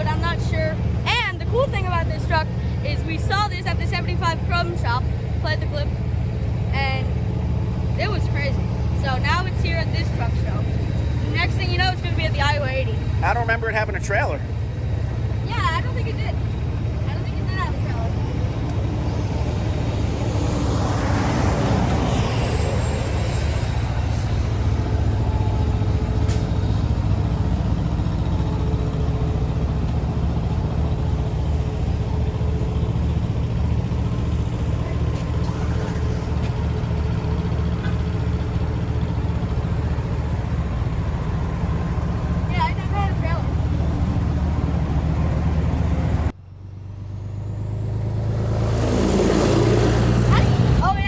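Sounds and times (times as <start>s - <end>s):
diesel truck engine idling: 0.0s - 51.0s.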